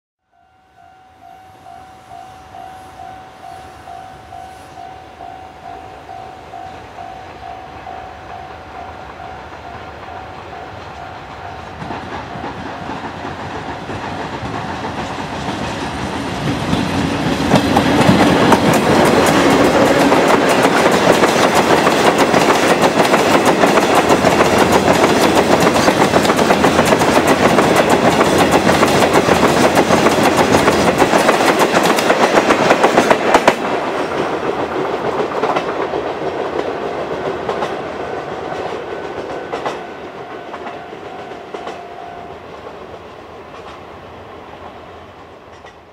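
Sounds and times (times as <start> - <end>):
freight train passing: 0.3 - 45.9
wheels clattering over rail joints: 11.8 - 39.8.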